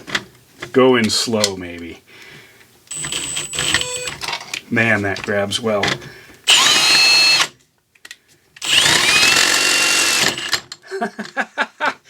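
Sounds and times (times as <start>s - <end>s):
power drill drilling metal: 2.9s - 4.1s, 6.5s - 7.5s, 8.6s - 10.7s.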